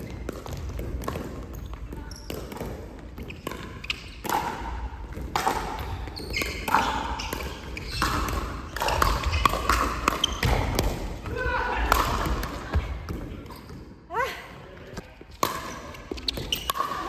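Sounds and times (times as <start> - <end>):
ball struck and bouncing: 2.3 - 11.3.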